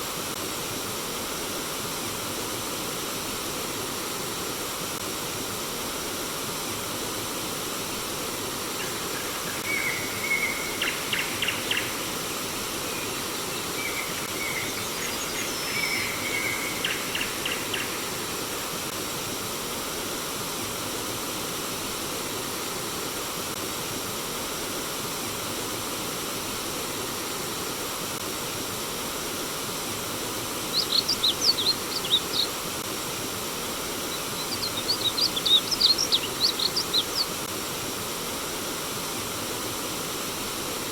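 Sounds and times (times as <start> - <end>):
songbirds chirping and trilling: 8.8 - 18.5, 30.6 - 32.7, 33.8 - 37.5
stream water rushing: 25.5 - 40.9.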